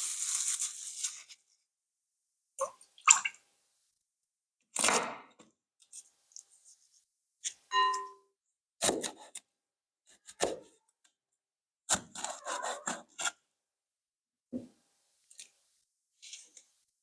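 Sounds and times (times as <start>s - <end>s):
rubbing and scraping food preparation: 0.0s - 1.6s, 5.8s - 7.7s, 11.9s - 13.4s, 15.1s - 17.0s.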